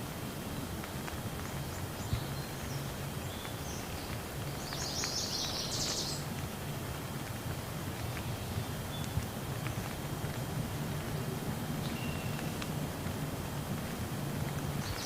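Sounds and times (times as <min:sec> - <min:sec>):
rain falling: 0:00.0 - 0:15.0
raindrops ticking: 0:00.0 - 0:15.0.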